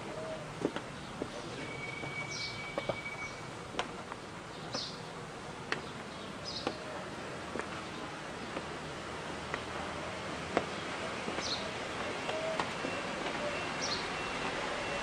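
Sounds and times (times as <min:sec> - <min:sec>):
high bird chirps: 0:01.6 - 0:03.5.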